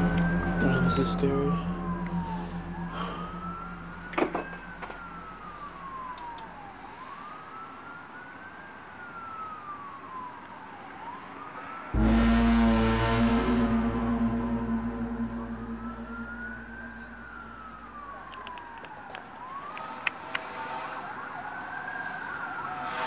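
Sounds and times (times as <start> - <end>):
loud low hum: 0.0 - 6.8, 11.9 - 18.4
wailing tone: 0.0 - 7.2, 11.9 - 19.0.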